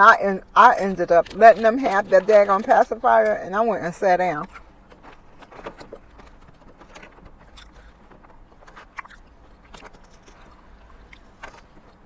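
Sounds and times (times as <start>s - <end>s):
low steady hum: 0.0s - 12.0s
person chewing salad: 4.4s - 12.0s.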